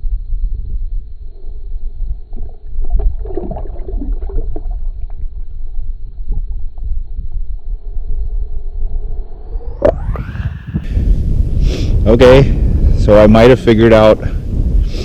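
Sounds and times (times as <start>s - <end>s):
constant low rumble: 0.0s - 15.0s
water splashing and gurgling: 2.0s - 7.3s.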